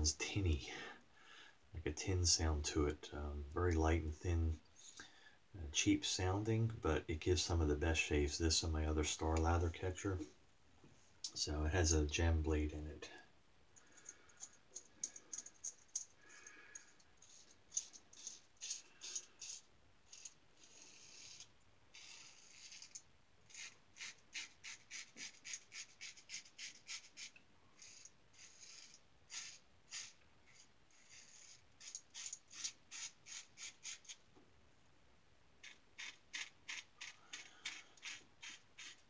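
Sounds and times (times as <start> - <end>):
razor scraping stubble: 17.3 - 34.2, 35.6 - 39.0.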